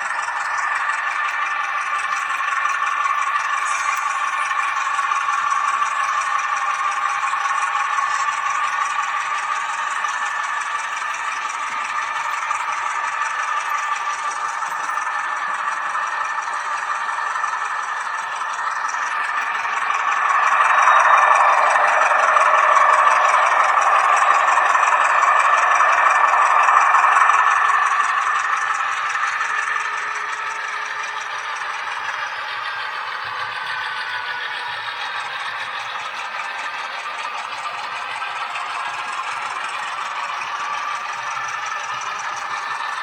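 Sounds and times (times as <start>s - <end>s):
model train hum and rattle: 0.0s - 43.0s.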